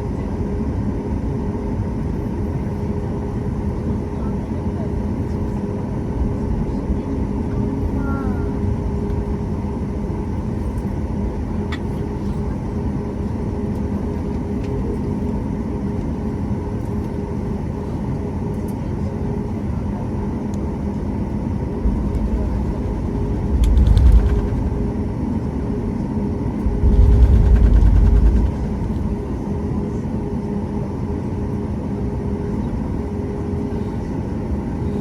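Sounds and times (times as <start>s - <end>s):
jet engine cabin hum: 0.0s - 35.0s
faint rattle: 23.3s - 24.8s, 26.7s - 29.1s.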